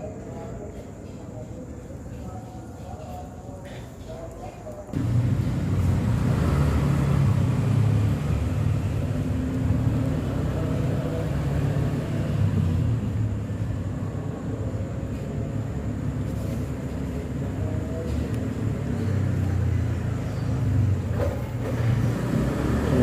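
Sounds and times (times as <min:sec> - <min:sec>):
motor engine running: 0:05.0 - 0:13.9.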